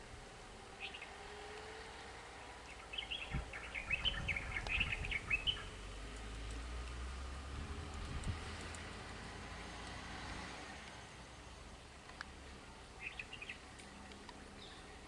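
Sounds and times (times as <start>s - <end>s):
small bird chirping: 0.8s - 1.6s, 2.4s - 5.8s, 12.9s - 15.0s.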